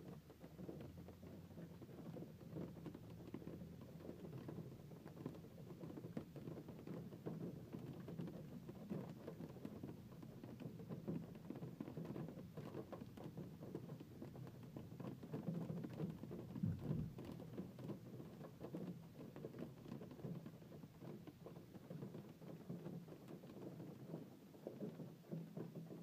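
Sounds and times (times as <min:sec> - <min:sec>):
heavy knock: 0:16.6 - 0:17.2.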